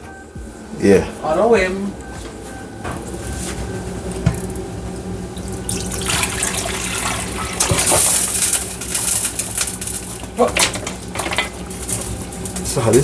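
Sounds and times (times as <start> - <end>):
liquid splashing pour: 5.7 - 8.5
metal pots clanking: 5.7 - 12.8.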